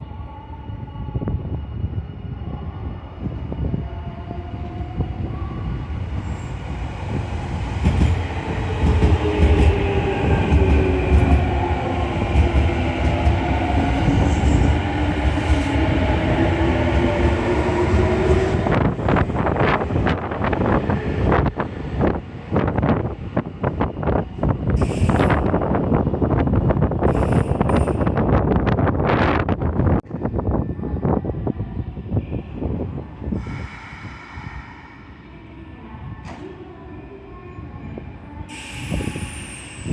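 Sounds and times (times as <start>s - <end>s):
train running gear rumble: 5.6s - 31.2s.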